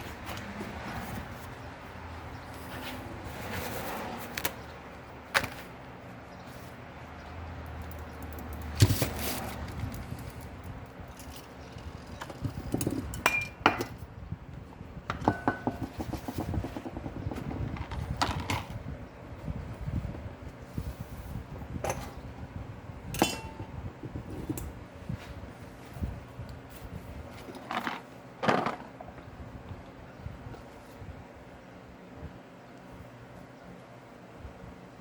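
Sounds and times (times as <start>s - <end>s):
metal tools clinking: 23.2s - 23.7s.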